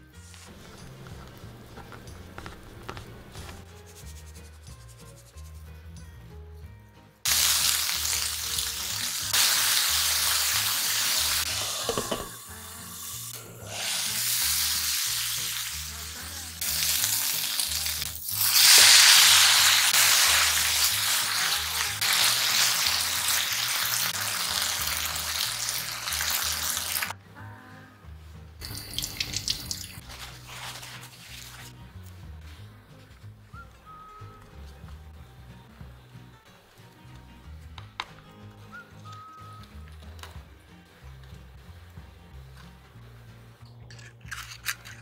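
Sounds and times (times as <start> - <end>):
peppers sizzling in a pan: 7.3 - 27.1
sauce poured into hot pan: 7.3 - 27.1, 28.6 - 30.0.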